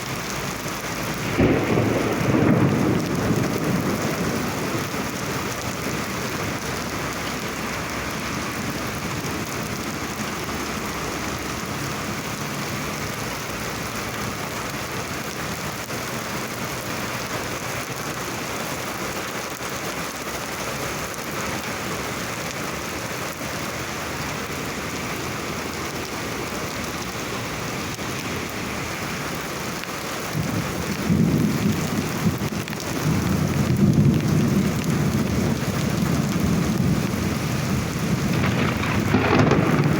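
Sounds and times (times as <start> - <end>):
rain falling steadily: 0.0 - 39.9
low rumble of thunder: 1.0 - 7.5, 29.2 - 39.9.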